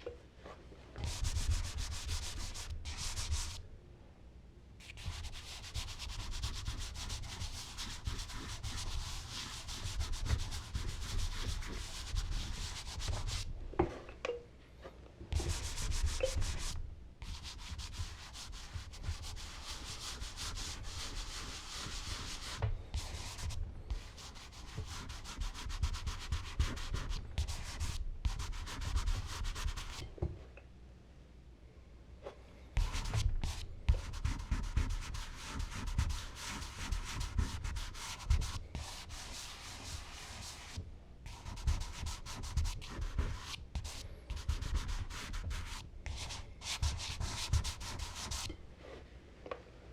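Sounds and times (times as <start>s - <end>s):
charcoal rubbing on paper: 1.0s - 3.6s, 4.8s - 13.5s, 15.4s - 30.0s, 32.8s - 48.5s.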